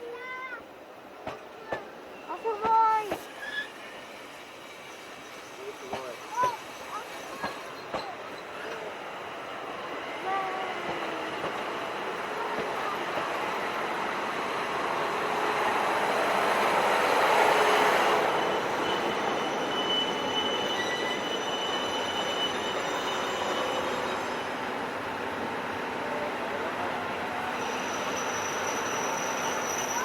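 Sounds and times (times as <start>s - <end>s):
train wheels on rails: 0.4s - 30.0s
high wheel squealing: 1.9s - 10.2s, 16.3s - 24.7s, 26.9s - 30.0s.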